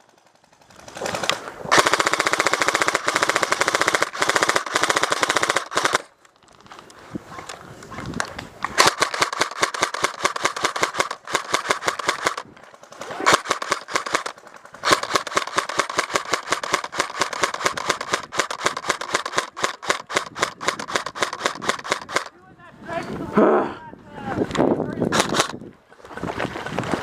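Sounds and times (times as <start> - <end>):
airsoft gun firing full auto: 0.0 - 6.1, 8.8 - 22.3, 25.1 - 25.6.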